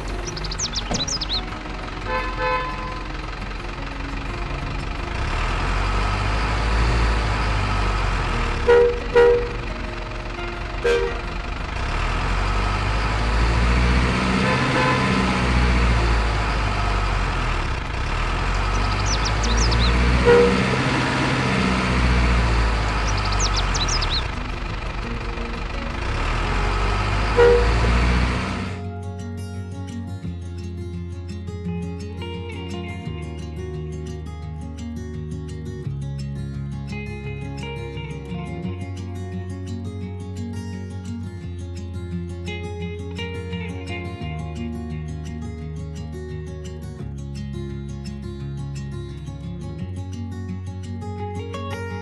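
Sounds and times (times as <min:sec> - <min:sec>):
truck engine running: 0:00.0 - 0:29.4
short horn blasts: 0:02.0 - 0:03.1, 0:08.5 - 0:09.7, 0:10.4 - 0:11.4, 0:14.1 - 0:16.0, 0:20.0 - 0:21.9, 0:26.7 - 0:28.8.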